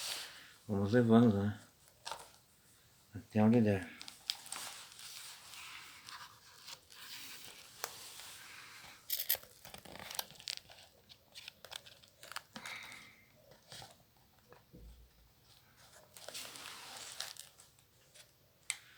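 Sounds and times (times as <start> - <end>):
paper crinkling: 3.9 - 18.9.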